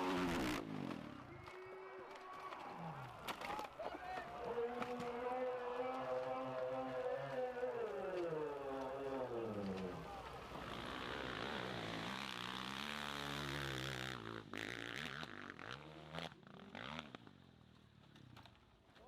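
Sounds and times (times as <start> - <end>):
motorcycle engine revving: 0.0 - 1.2, 9.8 - 17.4.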